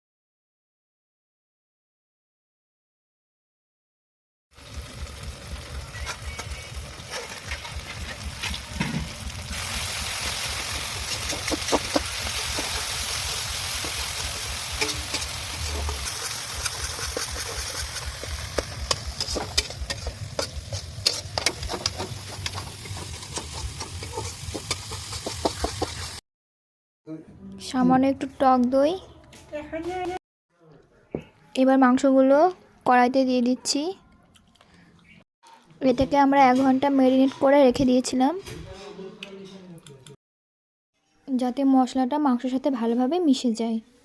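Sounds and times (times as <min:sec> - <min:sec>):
food sizzling in hot oil: 0:04.5 - 0:26.2
spatula scraping and tapping pan: 0:10.6 - 0:26.2.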